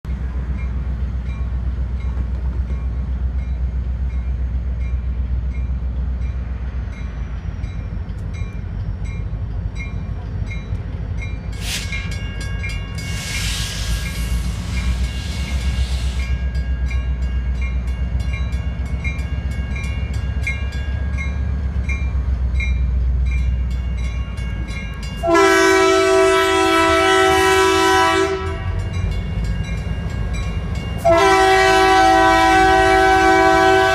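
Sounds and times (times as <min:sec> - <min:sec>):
train passing rumble: 0:00.0 - 0:33.9
hiss: 0:11.6 - 0:12.1, 0:13.0 - 0:16.4
train horn chord: 0:25.2 - 0:28.8, 0:31.0 - 0:33.9.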